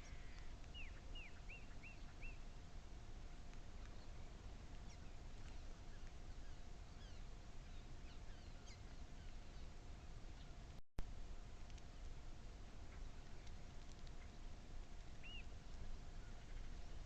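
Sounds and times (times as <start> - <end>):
small birds chirping: 0.0 - 2.6, 3.2 - 10.8, 11.6 - 17.0
faint steady tone: 0.0 - 17.0
low outdoor rumble: 0.0 - 17.0.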